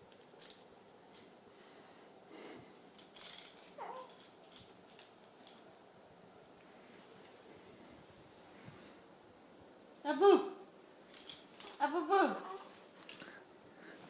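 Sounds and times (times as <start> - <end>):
baby squealing: 3.8 - 4.1, 12.4 - 12.8.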